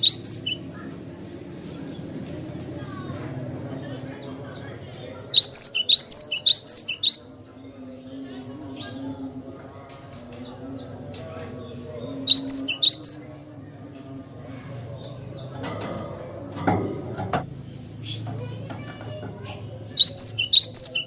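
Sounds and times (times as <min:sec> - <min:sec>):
bird singing high rapid notes: 0:00.0 - 0:00.7, 0:04.2 - 0:07.5, 0:11.0 - 0:13.5, 0:19.5 - 0:21.0.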